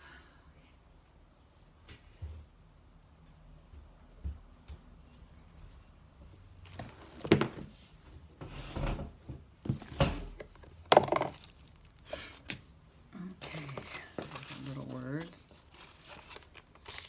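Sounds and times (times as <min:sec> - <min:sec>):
paper rustling: 0:09.7 - 0:12.7, 0:13.3 - 0:17.0.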